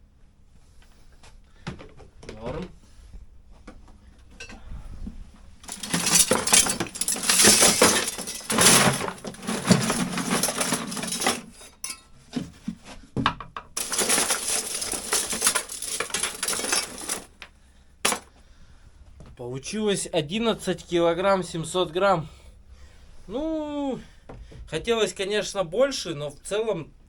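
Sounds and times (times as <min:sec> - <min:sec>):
scrap metal clattering into box: 0:05.7 - 0:12.0, 0:13.8 - 0:17.4.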